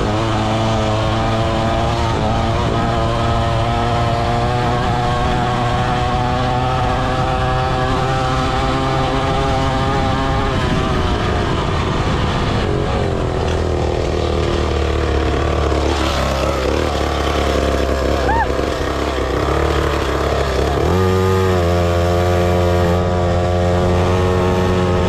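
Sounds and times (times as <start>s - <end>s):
motorbike engine running: 0.0s - 25.0s.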